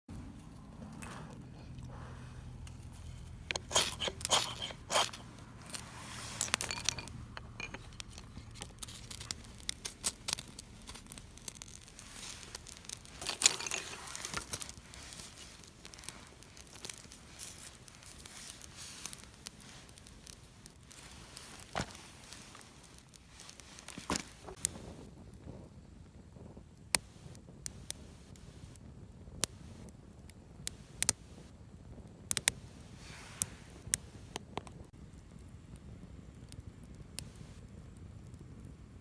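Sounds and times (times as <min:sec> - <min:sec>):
dry material crunching and scraping: 0:02.6 - 0:24.8
sharp cracks: 0:03.4 - 0:24.8.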